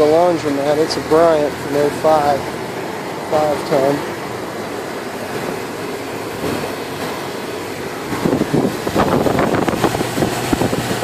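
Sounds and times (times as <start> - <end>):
air conditioner fan running: 0.0 - 11.0
wind buffeting microphone: 8.1 - 11.0.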